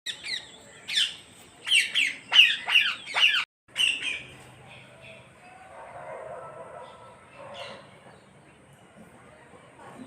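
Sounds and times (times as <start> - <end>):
parrot squawking: 1.7 - 4.2.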